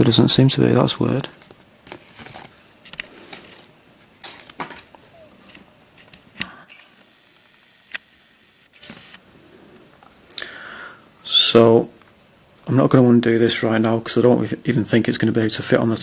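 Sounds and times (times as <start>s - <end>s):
soft packaging rustling: 1.1s - 6.9s.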